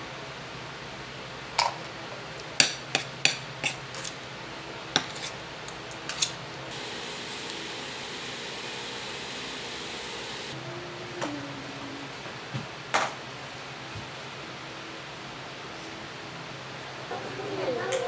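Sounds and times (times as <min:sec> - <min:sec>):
cutlery and dishes clinking: 0:02.6 - 0:04.2, 0:05.0 - 0:06.4
steady hiss: 0:06.7 - 0:10.6.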